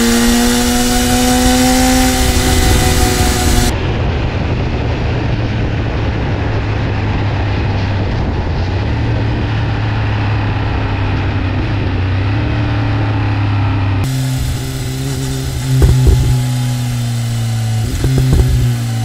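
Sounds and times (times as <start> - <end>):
motorcycle engine droning: 0.0 - 19.0
wind rush: 0.0 - 19.0.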